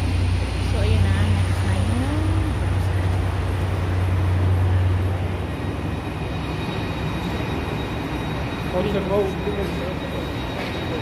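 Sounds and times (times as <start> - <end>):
low train rumble: 0.0 - 11.0.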